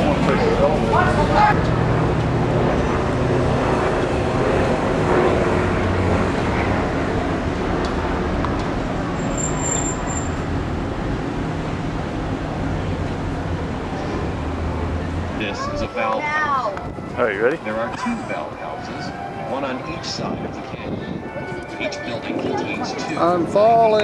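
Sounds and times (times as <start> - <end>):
vehicle engine and traffic hum: 0.0 - 24.0.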